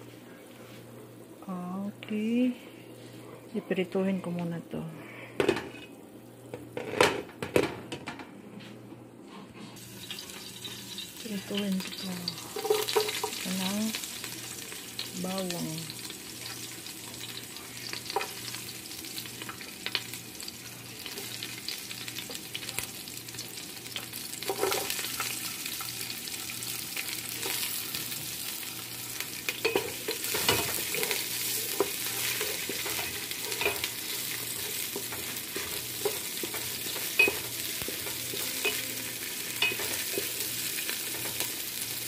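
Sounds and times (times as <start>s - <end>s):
garlic and onion sizzling in oil: 9.8s - 42.0s.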